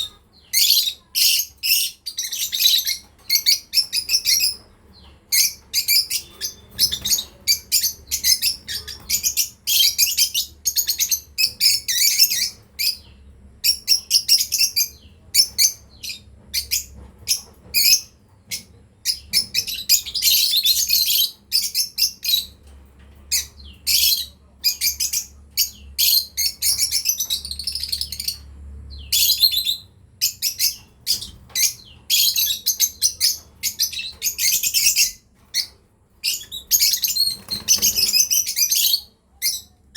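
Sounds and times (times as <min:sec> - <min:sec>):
lovebirds chirping: 0:00.0 - 0:22.7, 0:23.3 - 0:39.9.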